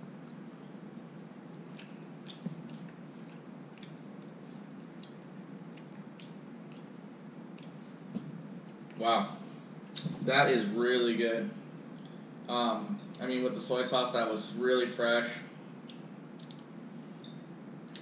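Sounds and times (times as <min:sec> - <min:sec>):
low room hum: 0:00.0 - 0:18.0
person chewing wetly: 0:00.2 - 0:08.0, 0:15.8 - 0:16.7.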